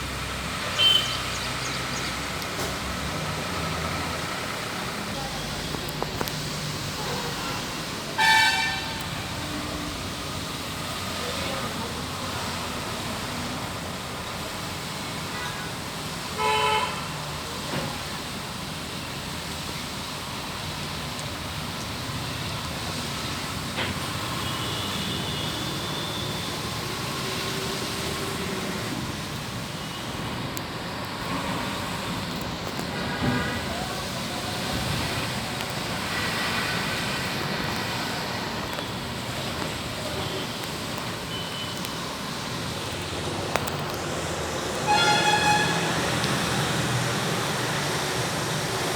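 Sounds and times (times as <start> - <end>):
passing vehicle engines: 0.0 - 15.0, 20.0 - 48.9
heavy rain: 0.0 - 48.9
traffic on wet highway: 0.0 - 48.9
vehicle horn honk: 0.8 - 1.2, 8.2 - 9.0, 16.4 - 17.1, 44.8 - 46.2.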